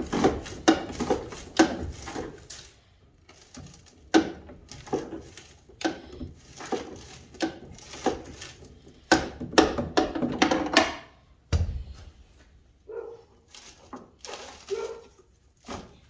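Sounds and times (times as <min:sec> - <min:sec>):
tools knocking on metal: 0:09.1 - 0:11.0
heavy thump: 0:11.5 - 0:12.2.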